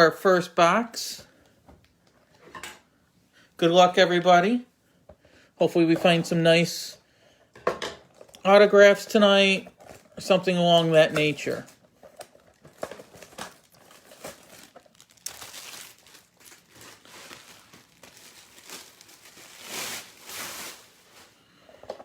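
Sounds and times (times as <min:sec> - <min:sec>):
packaging tearing and crinkling: 0:11.5 - 0:21.4.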